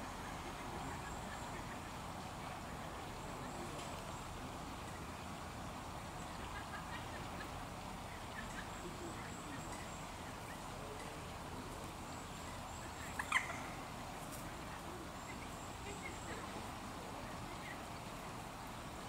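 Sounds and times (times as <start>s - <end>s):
steady background noise: 0.0s - 19.0s.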